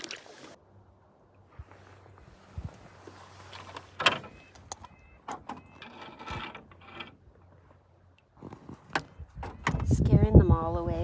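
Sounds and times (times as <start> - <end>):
canoe paddling: 0.0 - 0.6.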